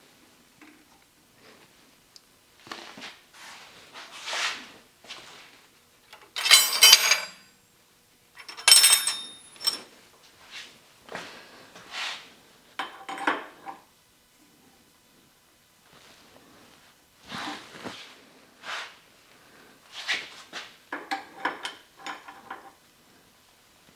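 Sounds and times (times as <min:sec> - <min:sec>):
metal tools clinking: 0:06.2 - 0:07.5, 0:08.4 - 0:09.9.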